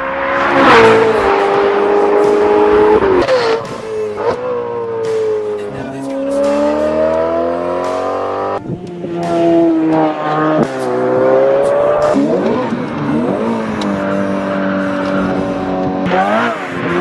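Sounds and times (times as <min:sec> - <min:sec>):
sports car engine accelerating: 0:00.0 - 0:17.0.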